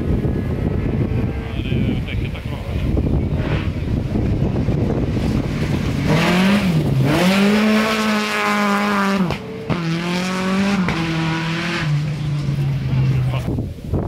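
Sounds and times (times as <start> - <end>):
rally car engine at high revs: 3.0 - 13.6.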